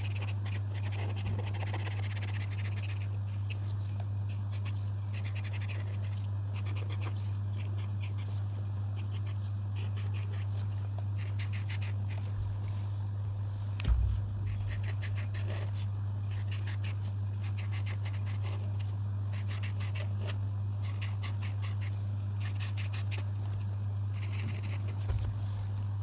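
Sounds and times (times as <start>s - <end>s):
steady low hum: 0.0s - 26.0s
dull thump: 12.3s - 12.7s, 13.8s - 15.5s, 25.1s - 25.5s
coloring strokes on paper: 14.5s - 23.3s.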